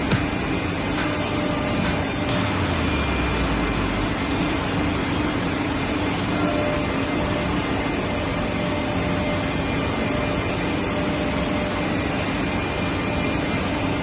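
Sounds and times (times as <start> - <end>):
faint steady hum: 2.3 - 8.5.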